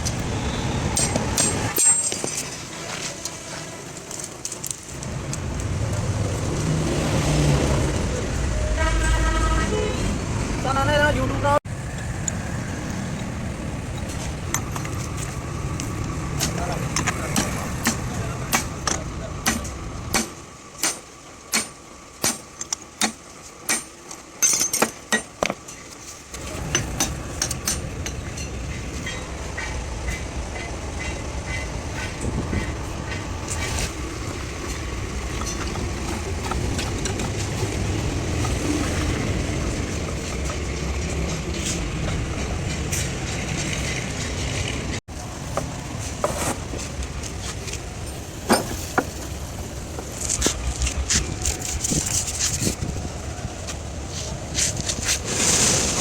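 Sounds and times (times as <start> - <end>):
truck engine running: 26.0 - 55.0.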